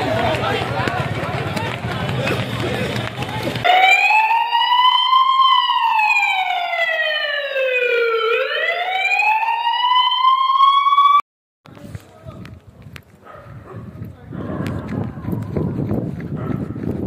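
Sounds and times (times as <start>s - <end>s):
siren wail: 3.6s - 11.2s.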